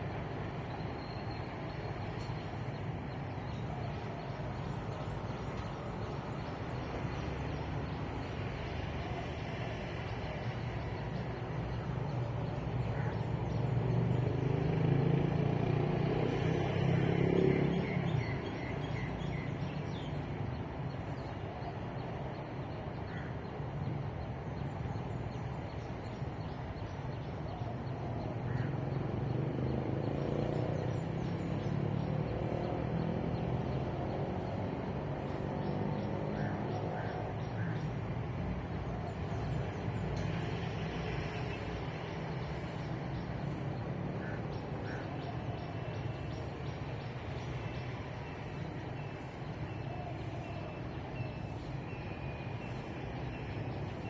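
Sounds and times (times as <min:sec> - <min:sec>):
road traffic rumble: 0:00.0 - 0:54.0
vehicle passing close by: 0:12.6 - 0:19.3, 0:28.7 - 0:49.4.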